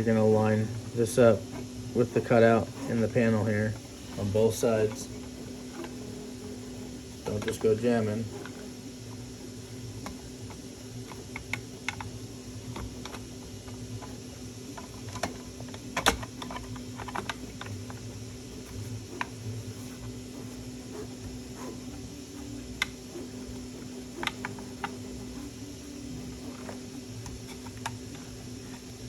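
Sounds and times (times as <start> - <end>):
steady low hum: 0.0 - 29.0
plastic parts clicking together: 13.9 - 18.1.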